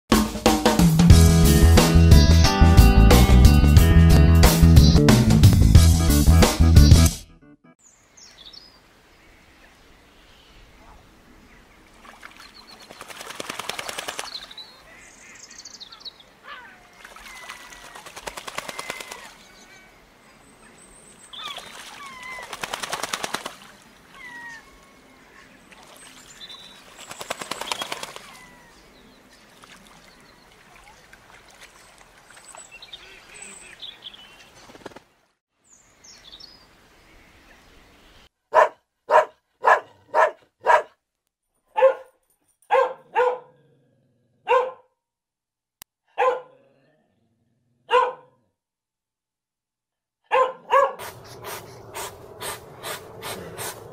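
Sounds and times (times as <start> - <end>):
small birds chirping: 7.8 - 23.3, 24.0 - 35.0, 35.7 - 38.3
dog barking: 38.5 - 41.0, 41.7 - 43.6, 44.4 - 44.9, 46.1 - 46.6, 47.8 - 48.4, 50.2 - 53.8.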